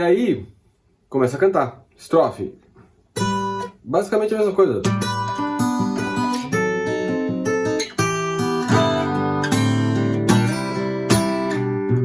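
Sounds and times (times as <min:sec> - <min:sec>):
acoustic guitar fingerpicking: 0:03.2 - 0:03.8, 0:04.8 - 0:12.0.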